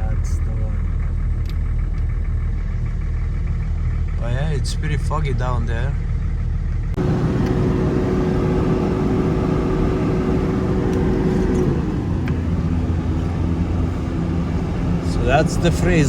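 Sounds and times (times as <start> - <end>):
engine hum and road noise: 0.0 - 16.0.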